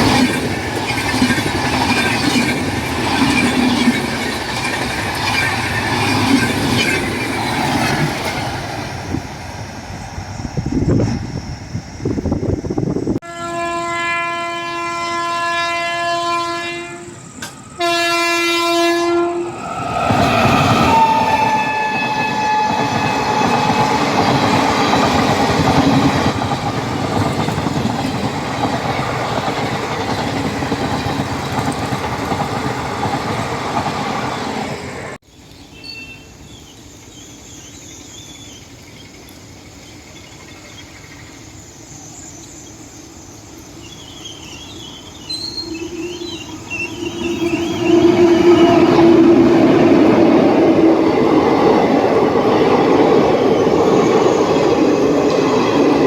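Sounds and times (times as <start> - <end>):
train rushing past: 0.0 - 13.2, 13.8 - 35.2, 41.5 - 56.0
locomotive air horn blasts: 13.2 - 19.6, 20.9 - 24.1, 45.4 - 49.5.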